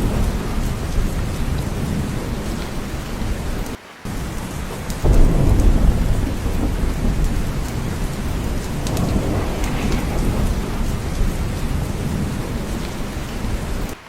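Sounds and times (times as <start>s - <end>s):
low thunder rumble: 0.0s - 14.0s
steady rain: 0.0s - 14.0s.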